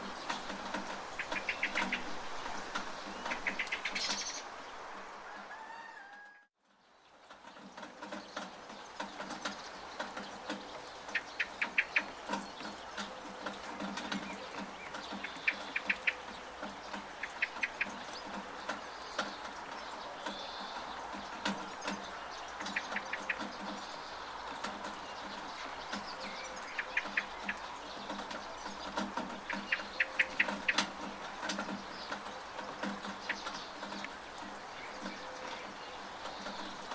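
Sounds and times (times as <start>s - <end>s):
drops tapping from a gutter: 0.0s - 4.2s, 7.2s - 36.9s
bird chirping: 0.0s - 4.6s, 6.9s - 36.9s
rain pattering: 0.0s - 5.6s, 6.6s - 36.9s.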